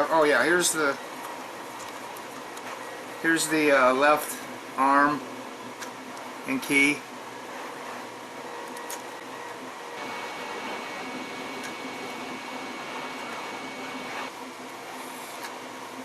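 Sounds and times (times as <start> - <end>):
printer fans whirring: 0.0 - 16.0
whining stepper motor tones: 10.0 - 14.3.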